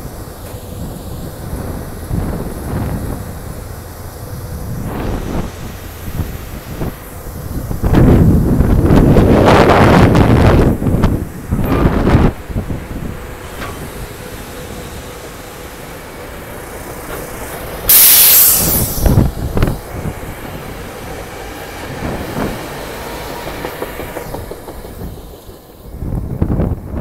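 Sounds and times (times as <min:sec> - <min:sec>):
loud hiss burst: 0:17.3 - 0:20.6
train wheels clattering: 0:20.6 - 0:25.9.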